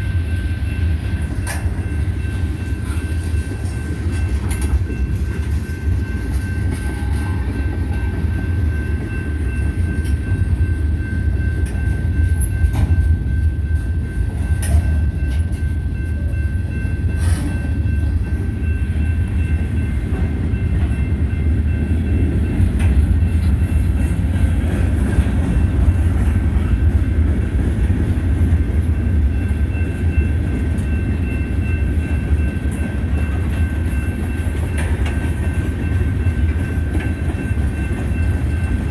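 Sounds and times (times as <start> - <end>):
train wheels rumbling on rails: 0.0 - 38.9
wheels clicking over rail joints: 1.2 - 10.3, 21.9 - 38.9.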